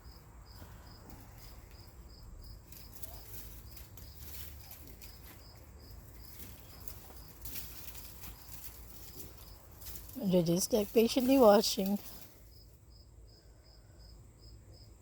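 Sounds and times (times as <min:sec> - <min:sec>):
cricket chirping: 0:00.0 - 0:15.0
light rustling: 0:02.6 - 0:12.6.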